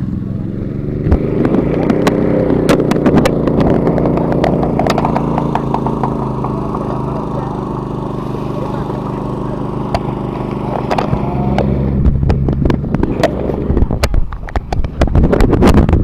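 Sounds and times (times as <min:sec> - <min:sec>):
vehicle engine running: 0:00.0 - 0:16.0
sharp clattering knocks: 0:01.0 - 0:07.8.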